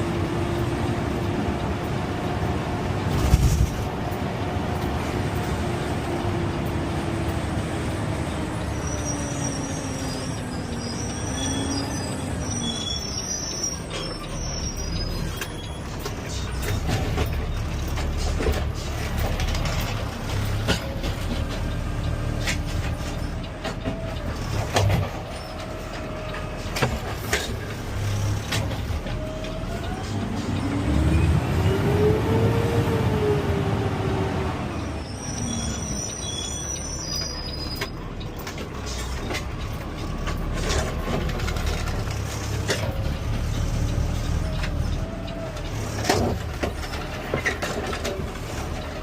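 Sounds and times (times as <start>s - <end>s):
garbage truck engine: 0.0s - 49.0s
short high squeals: 8.6s - 16.5s, 34.9s - 37.9s.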